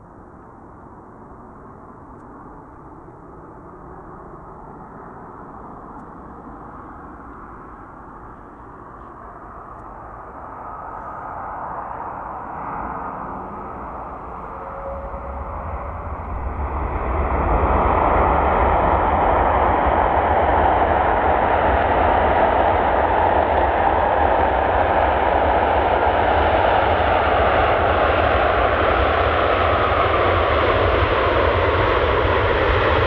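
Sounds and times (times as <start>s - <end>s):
jet engine noise: 0.0s - 33.0s.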